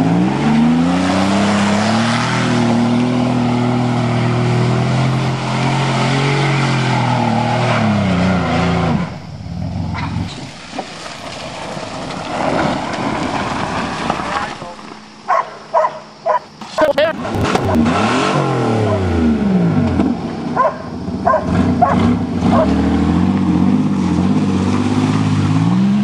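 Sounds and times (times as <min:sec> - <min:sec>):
car engine revving hard: 0:00.0 - 0:10.3, 0:17.2 - 0:26.0.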